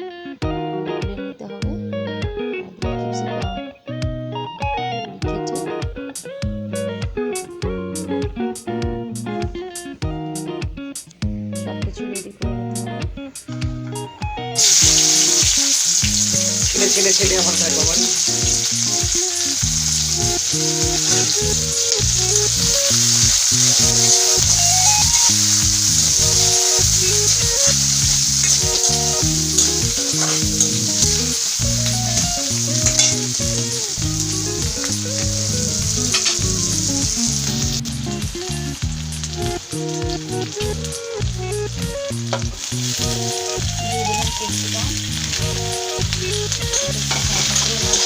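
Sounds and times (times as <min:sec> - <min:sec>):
background music: 0:00.0 - 0:48.0
food sizzling in hot oil: 0:12.2 - 0:48.0.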